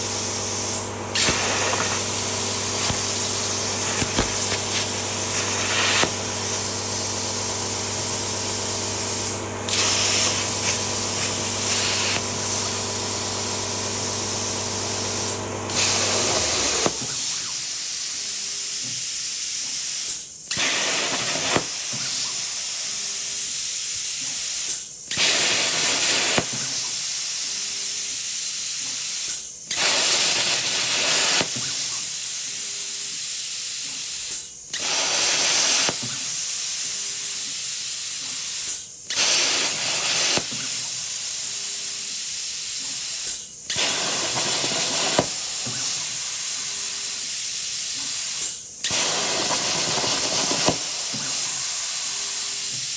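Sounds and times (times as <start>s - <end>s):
plasma cutter torch hissing: 0.0s - 52.9s.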